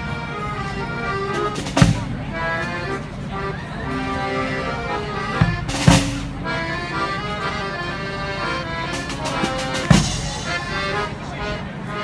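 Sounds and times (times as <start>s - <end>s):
brass band playing: 0.0s - 12.0s
bass drum hits: 5.4s - 6.4s, 9.4s - 10.5s.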